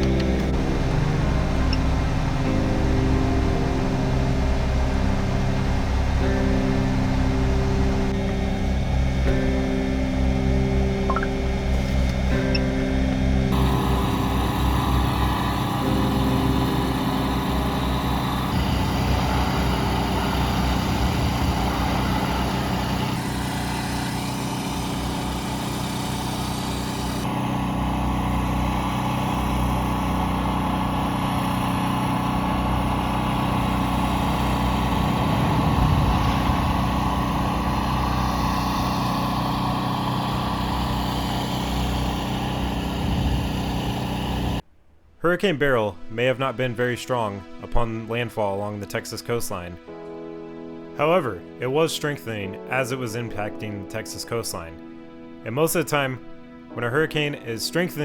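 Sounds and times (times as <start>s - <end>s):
vehicle engine running: 0.0s - 44.6s
road and wind noise: 13.5s - 29.4s, 32.2s - 44.6s.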